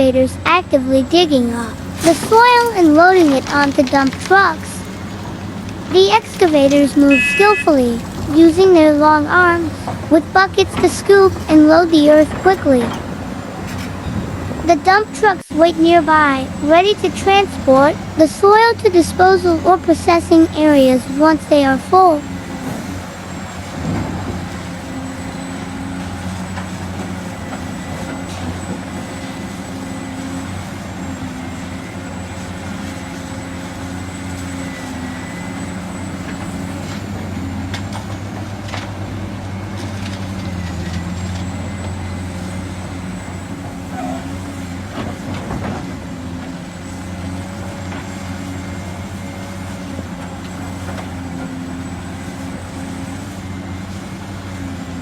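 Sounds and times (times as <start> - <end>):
diesel engines droning: 0.0 - 55.0
thin steady whine: 5.9 - 12.9.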